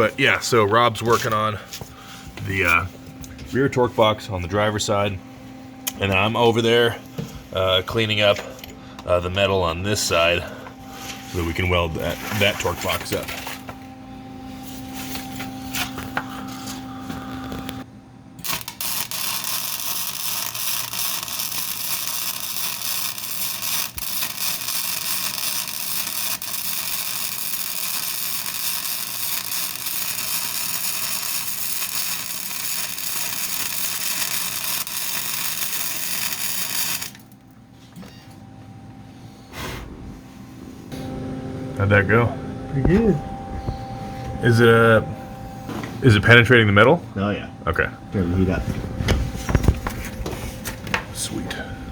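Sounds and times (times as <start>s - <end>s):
steady hum: 0.0s - 51.9s
welding arc crackling: 18.4s - 37.5s.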